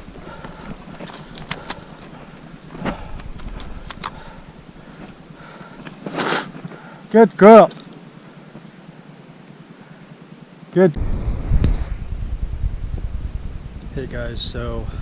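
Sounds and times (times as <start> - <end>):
stones clacking underfoot: 0.0 - 6.8.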